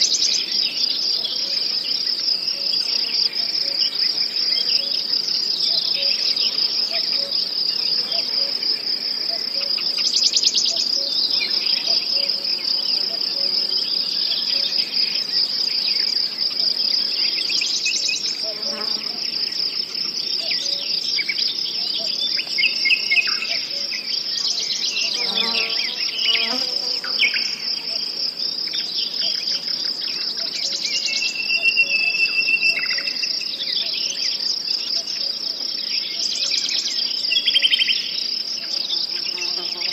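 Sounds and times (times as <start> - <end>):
crickets chirring: 0.0 - 39.9
bird chirps: 30.1 - 35.1.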